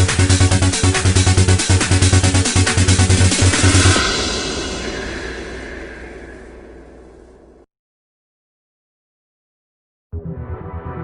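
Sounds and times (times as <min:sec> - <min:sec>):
electronic music: 0:00.0 - 0:07.1.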